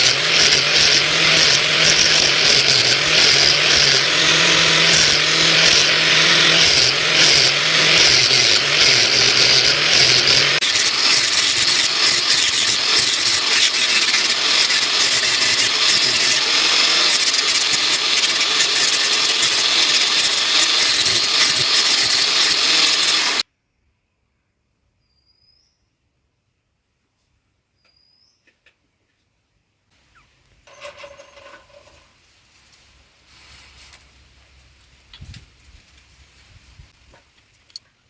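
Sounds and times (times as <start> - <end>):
power tool hissing on steel: 0.0 - 23.4.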